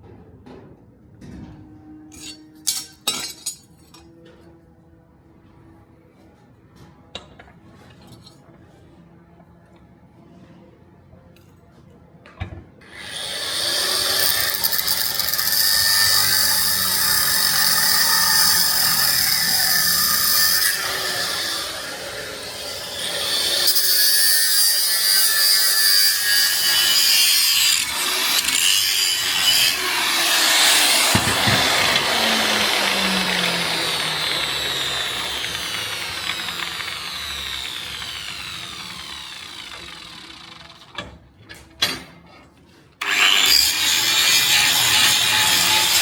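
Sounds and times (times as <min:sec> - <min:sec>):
power tool grinding metal: 0:12.8 - 0:41.0, 0:43.0 - 0:46.0
motor winding down: 0:30.0 - 0:40.7.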